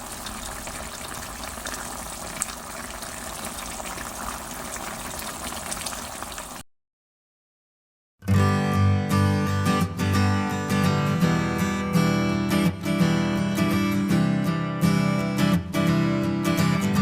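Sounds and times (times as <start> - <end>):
soup boiling and bubbling: 0.0 - 6.6.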